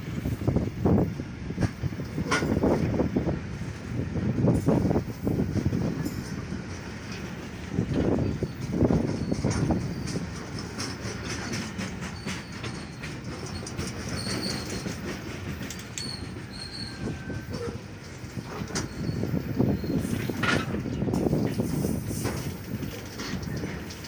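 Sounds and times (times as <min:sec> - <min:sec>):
freight train rumbling: 0:00.0 - 0:24.0
wheels clattering over rail joints: 0:00.2 - 0:03.0, 0:04.4 - 0:24.0
high wheel squeals: 0:08.2 - 0:15.1, 0:15.9 - 0:20.7.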